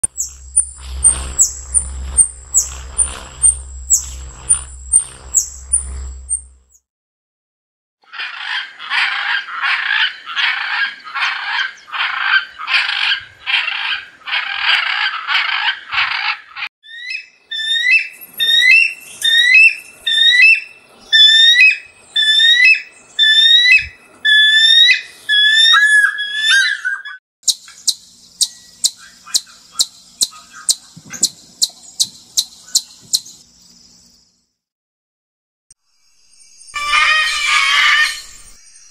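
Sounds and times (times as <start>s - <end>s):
hummingbird buzzy calls: 0.0s - 6.8s, 16.9s - 33.4s
eagle shrill whistles: 16.9s - 27.2s, 36.7s - 38.9s.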